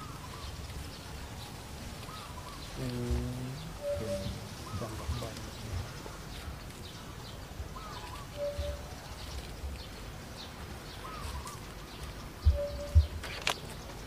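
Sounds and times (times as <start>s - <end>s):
faint high chirps: 2.1s - 6.2s, 7.8s - 9.5s, 12.4s - 13.5s
bird warbling call: 2.1s - 6.4s, 7.7s - 8.9s, 11.0s - 11.7s, 12.4s - 13.4s
low thumps: 12.3s - 13.2s.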